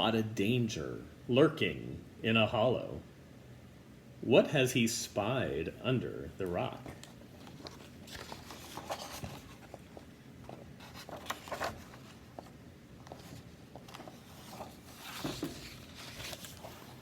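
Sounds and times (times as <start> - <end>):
paper page rustling: 6.7 - 17.0.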